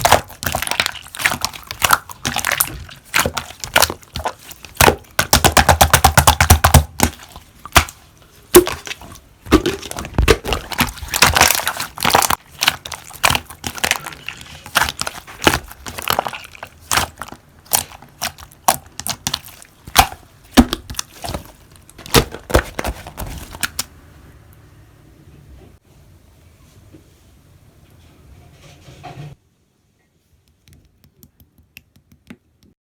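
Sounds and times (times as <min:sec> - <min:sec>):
slime crackling and squishing: 0:00.0 - 0:23.9.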